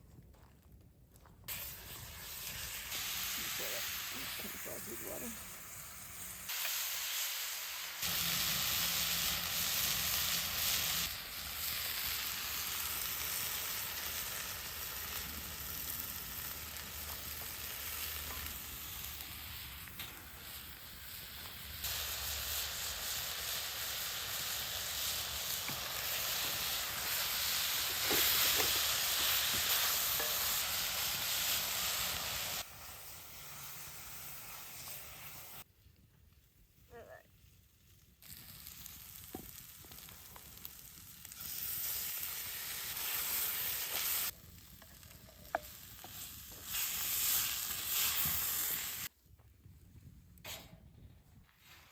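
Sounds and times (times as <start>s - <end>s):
food sizzling in a pan: 1.5s - 35.7s, 38.2s - 49.1s.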